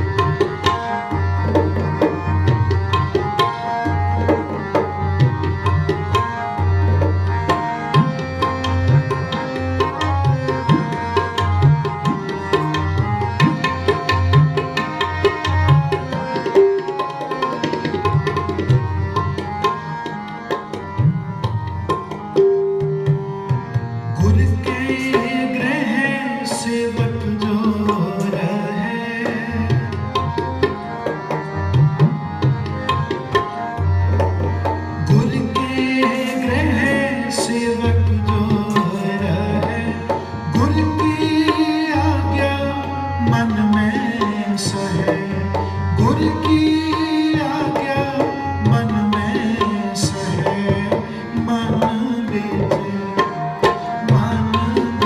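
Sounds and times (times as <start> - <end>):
tabla playing: 0.0 - 55.0
person singing devotional song: 24.1 - 55.0.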